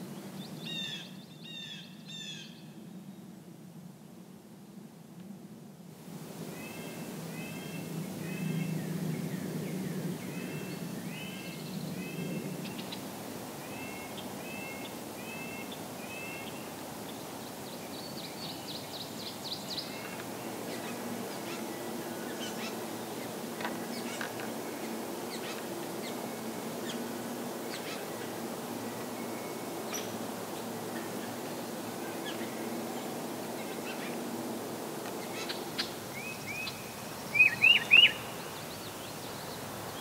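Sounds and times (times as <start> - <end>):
birds whistling: 35.2 - 38.3.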